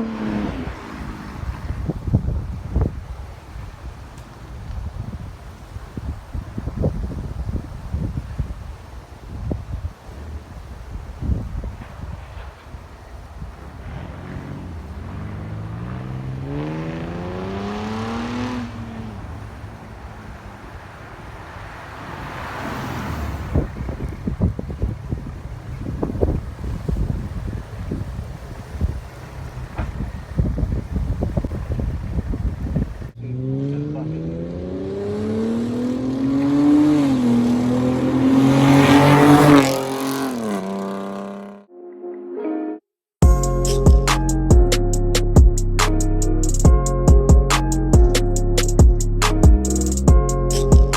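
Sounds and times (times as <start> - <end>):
car exhaust accelerating: 0.0 - 3.0, 13.6 - 41.7, 43.2 - 50.9
wind noise rushing: 0.0 - 19.4, 21.7 - 29.1, 29.8 - 33.2.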